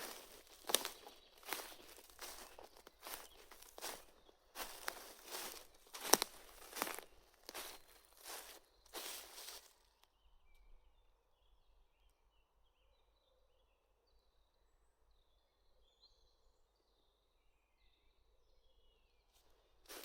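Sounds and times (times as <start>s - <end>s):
faint distant birdsong: 0.0s - 20.0s.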